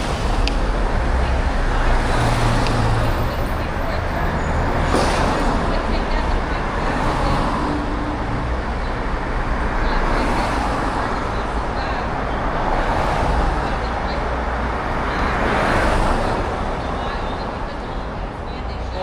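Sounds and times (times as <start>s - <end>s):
street traffic: 0.0s - 19.0s.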